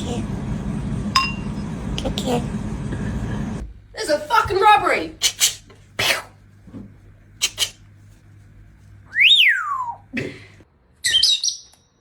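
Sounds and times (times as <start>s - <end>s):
parrot whistle: 9.1s - 10.1s.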